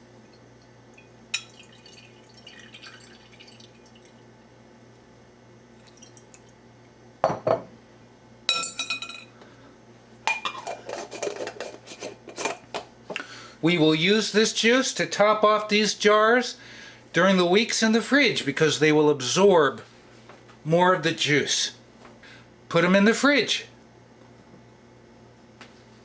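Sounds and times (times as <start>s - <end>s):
glass jars clinking: 1.4s - 3.2s, 8.5s - 9.3s.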